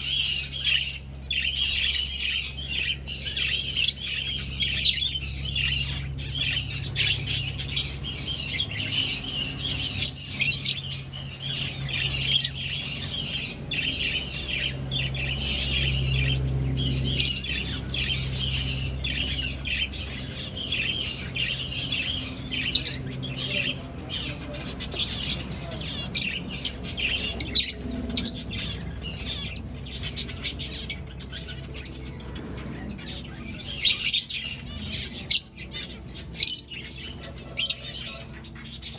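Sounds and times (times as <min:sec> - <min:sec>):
finches chirping: 0:00.0 - 0:38.9
steady low hum: 0:00.0 - 0:38.9.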